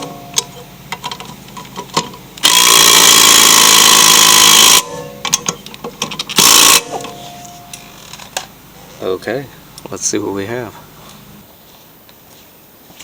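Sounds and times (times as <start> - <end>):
impact wrench hammering rattle: 0.0 - 8.4.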